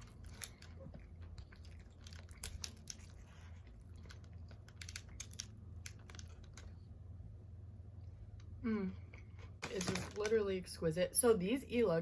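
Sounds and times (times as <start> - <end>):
chewing crunchy chips: 0.0 - 6.8.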